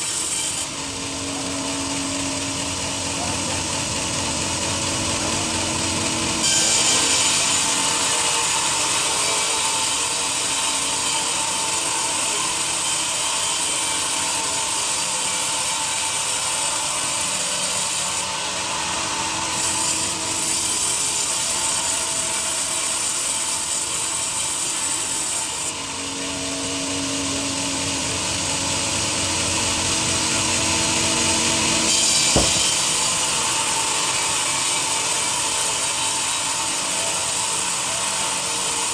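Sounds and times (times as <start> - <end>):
sawmill saw cutting log: 0.0 - 38.9
single knock: 32.3 - 32.8.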